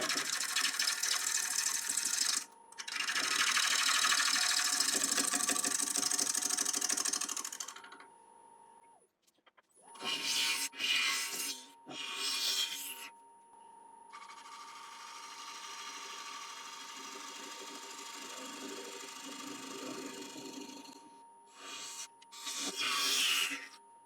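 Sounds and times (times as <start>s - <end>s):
gouge cutting spinning wood: 0.0s - 8.0s, 14.2s - 23.6s
lathe motor hum: 0.0s - 8.1s, 14.2s - 22.0s.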